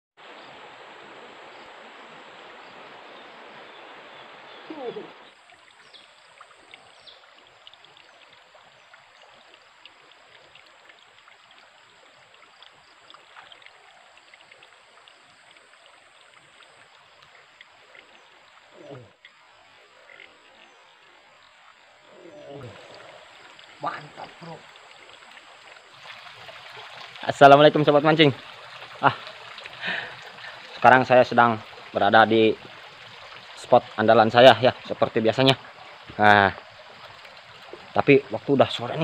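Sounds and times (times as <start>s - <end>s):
river flowing: 0.2s - 39.0s
small ticks and chirps: 5.3s - 25.9s.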